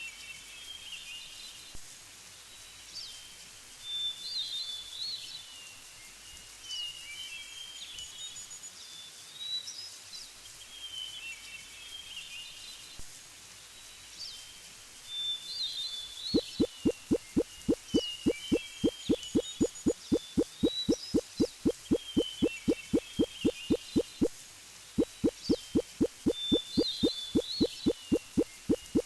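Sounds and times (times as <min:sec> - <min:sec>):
faint steady hiss: 0:00.0 - 0:29.0
songbird warbling: 0:16.4 - 0:24.3, 0:25.0 - 0:29.0.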